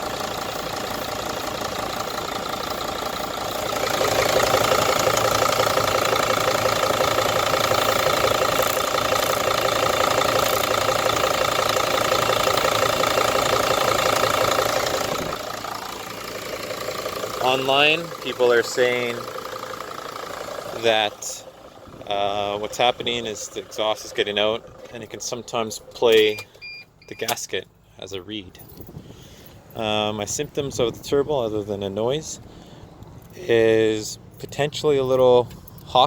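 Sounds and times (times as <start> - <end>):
exhaust leak whistling tones: 0.0 - 24.4, 26.2 - 27.3
diesel engine running: 0.0 - 36.0.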